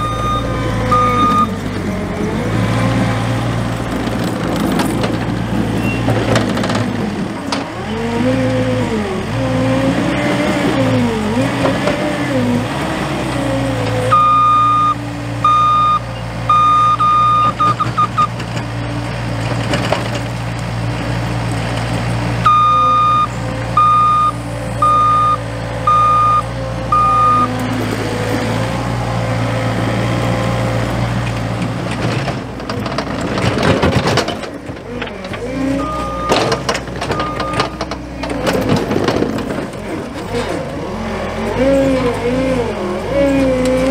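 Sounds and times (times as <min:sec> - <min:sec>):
reverse alarm beeping: 0:00.0 - 0:01.6, 0:14.1 - 0:18.3, 0:22.5 - 0:27.5
diesel engine running under load: 0:00.0 - 0:43.9.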